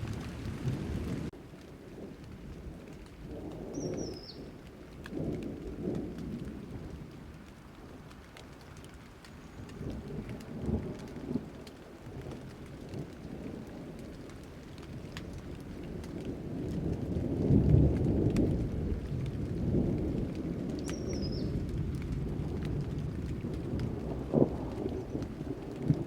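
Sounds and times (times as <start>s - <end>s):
low rolling thunder: 0.0s - 8.1s, 9.6s - 26.0s
steady rain: 0.0s - 26.0s.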